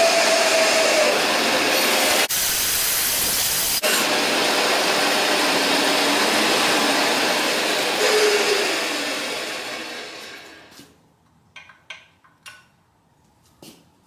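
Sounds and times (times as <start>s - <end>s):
bandsaw cutting wood: 0.0s - 10.8s.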